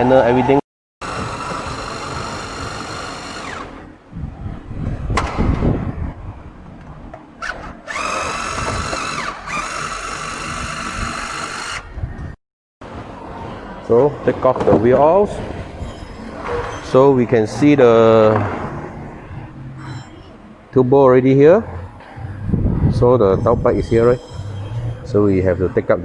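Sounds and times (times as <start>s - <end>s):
power drill whining: 1.0s - 3.9s, 7.4s - 11.9s.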